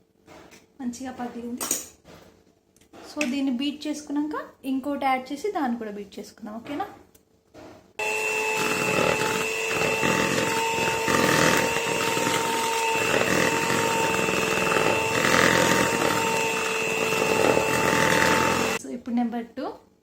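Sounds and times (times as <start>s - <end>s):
electric hand mixer whining: 8.0s - 18.8s.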